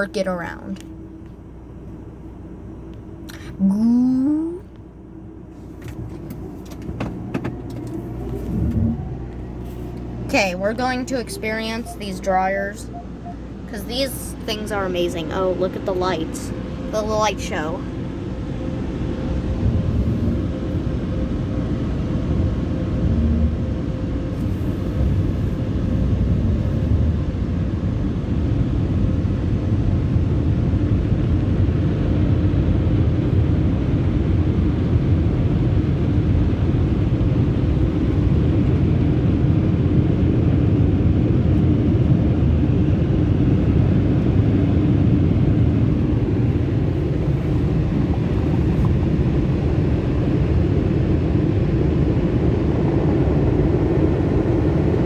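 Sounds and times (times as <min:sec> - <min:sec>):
car wash air dryers blowing: 0:05.0 - 0:30.8, 0:43.6 - 0:55.0.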